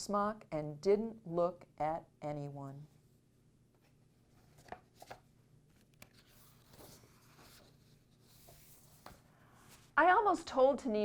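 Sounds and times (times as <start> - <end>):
page turning rustle: 4.3 - 10.0.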